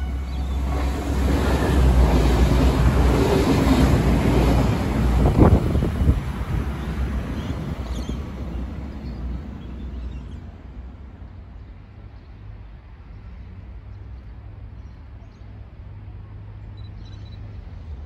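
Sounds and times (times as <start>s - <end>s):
diesel train rumble: 0.0s - 16.7s
wind on microphone: 0.7s - 8.5s.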